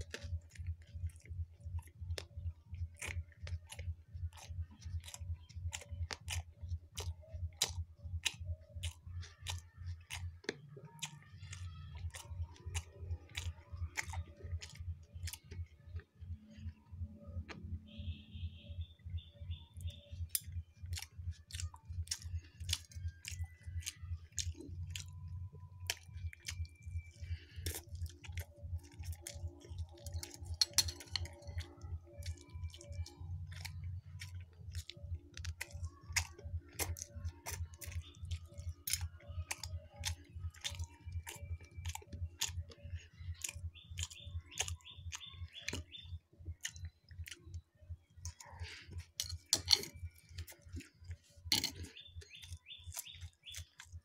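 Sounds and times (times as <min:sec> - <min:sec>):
crunchy chewing: 0:00.0 - 0:54.0
fork clicking on plate: 0:48.3 - 0:50.6, 0:51.5 - 0:52.0.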